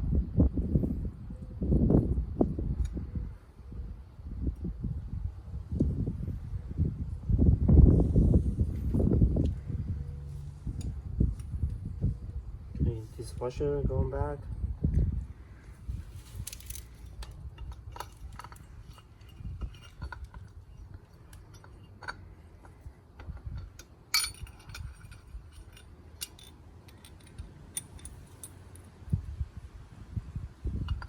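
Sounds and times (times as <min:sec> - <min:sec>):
metal parts clinking: 0:16.0 - 0:29.0.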